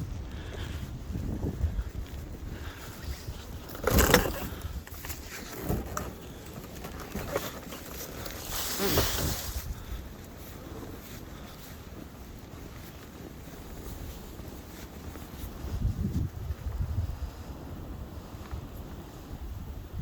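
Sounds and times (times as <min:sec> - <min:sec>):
wind gusts rushing: 0:00.0 - 0:04.9
wind buffeting microphone: 0:00.0 - 0:20.0.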